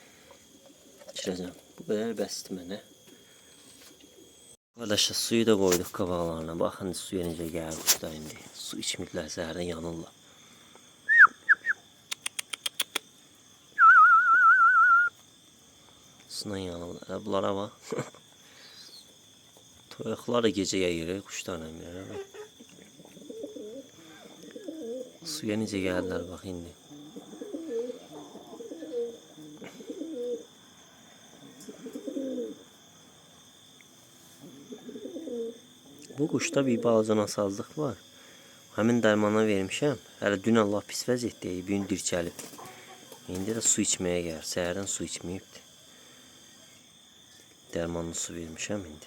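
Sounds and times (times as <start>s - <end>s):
insect chirring: 0.0s - 49.0s
person whistling: 11.1s - 11.8s, 13.8s - 15.1s
sharp clicks: 12.1s - 13.0s
pigeons cooing: 22.0s - 30.6s, 31.4s - 32.7s, 34.4s - 37.0s.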